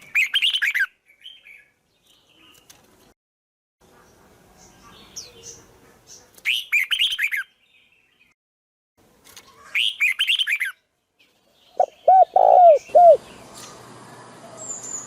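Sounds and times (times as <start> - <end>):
lower-pitched bird calls: 11.7 - 13.4.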